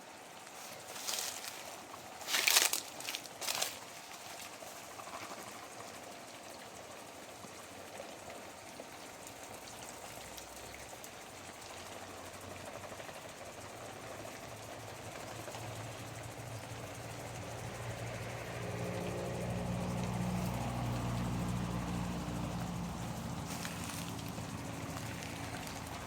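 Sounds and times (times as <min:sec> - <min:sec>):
sprinkler spraying water: 0:00.0 - 0:26.0
low engine hum: 0:11.8 - 0:26.0.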